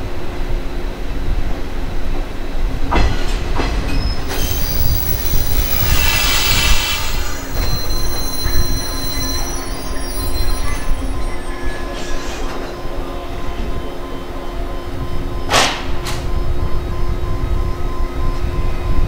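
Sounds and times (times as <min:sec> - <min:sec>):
train rumble: 0:00.0 - 0:19.0
high-pitched brake squeal: 0:03.9 - 0:15.6.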